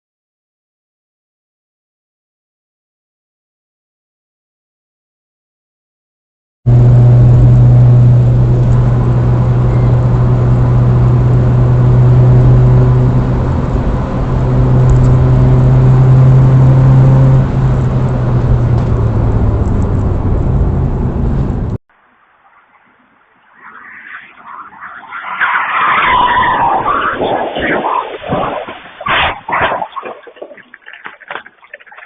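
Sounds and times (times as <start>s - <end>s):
vehicle engine drone: 6.7s - 27.0s
road noise: 6.7s - 32.0s.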